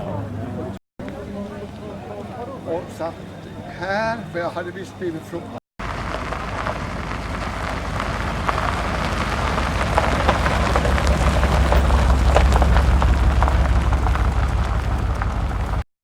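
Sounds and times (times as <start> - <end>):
car engine rumbling: 5.8 - 15.9
crackling noise: 5.8 - 15.9.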